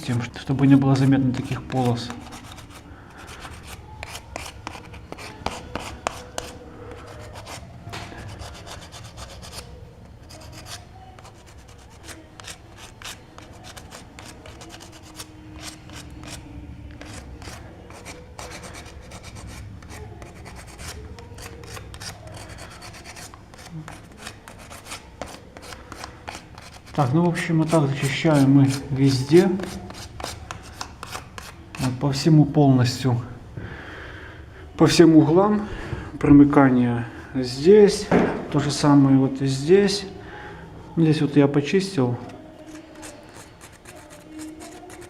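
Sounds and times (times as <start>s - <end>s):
sandpaper scratching stone: 1.0s - 7.6s, 8.2s - 32.0s, 42.6s - 45.0s.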